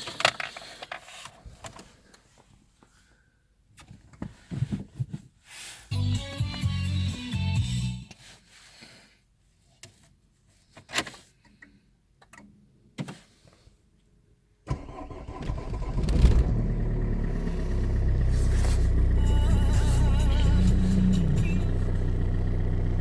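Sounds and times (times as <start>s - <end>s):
diesel engine starting and idling: 14.7s - 23.0s.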